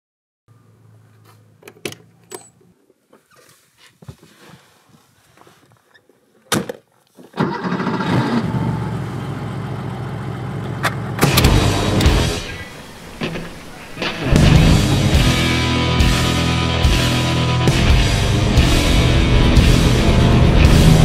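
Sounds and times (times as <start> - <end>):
car engine starting and idling: 7.4 - 21.0
car engine revving: 7.8 - 21.0.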